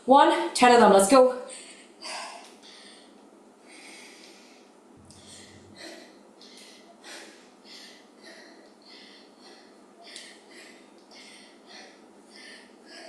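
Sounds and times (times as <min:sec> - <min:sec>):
woman breathing hard: 0:01.5 - 0:13.0.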